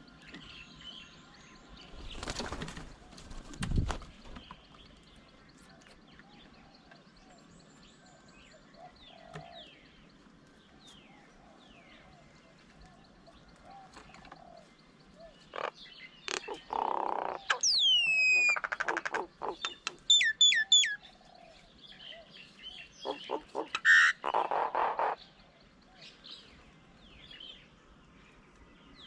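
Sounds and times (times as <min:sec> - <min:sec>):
birds chattering: 0:00.0 - 0:29.0.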